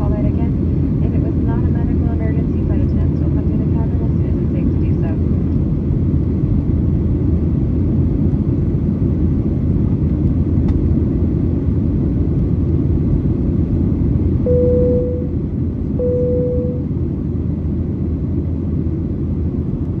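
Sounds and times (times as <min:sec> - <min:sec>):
airplane cabin rumble: 0:00.0 - 0:20.0
short chimes: 0:14.5 - 0:15.3, 0:16.0 - 0:16.8.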